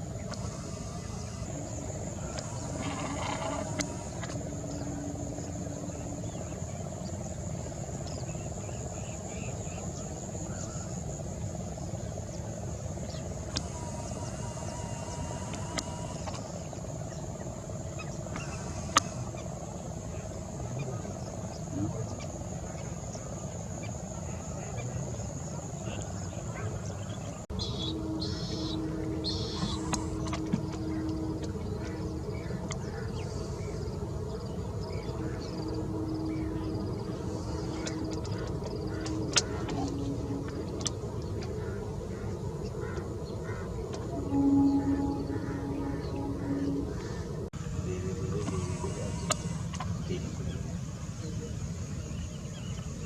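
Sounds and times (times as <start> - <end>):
birds chirping: 0.0 - 53.0
faint hum: 0.0 - 53.0
insects droning: 0.0 - 53.0
low steady rumble: 0.0 - 53.0
low rumble: 27.5 - 50.9.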